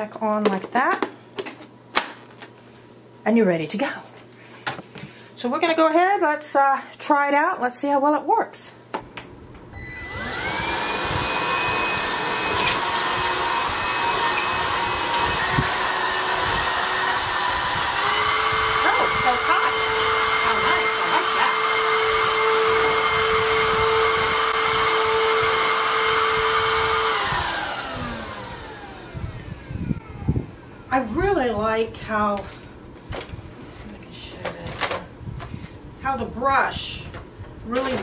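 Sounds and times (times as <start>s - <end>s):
stick vacuum motor whining: 9.6s - 30.9s.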